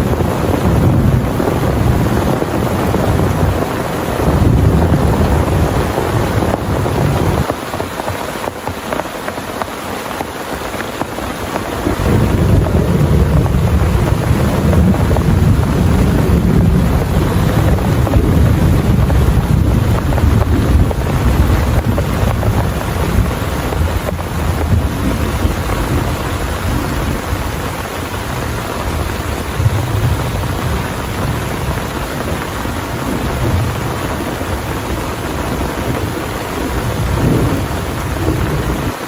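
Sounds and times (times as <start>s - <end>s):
heavy rain pouring: 0.0s - 39.0s
deep low rumble: 12.0s - 26.2s.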